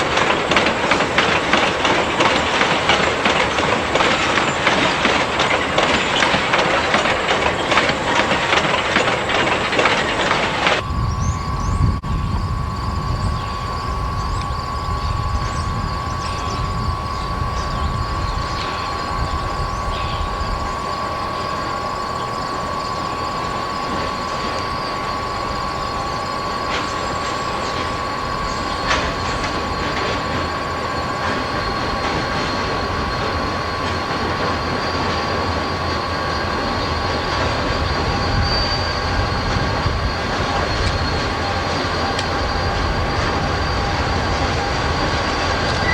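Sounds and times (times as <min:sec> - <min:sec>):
low train rumble: 0:00.0 - 0:45.9
steady high-pitched tone: 0:00.0 - 0:45.9
train wheels clacking on track: 0:00.0 - 0:45.9.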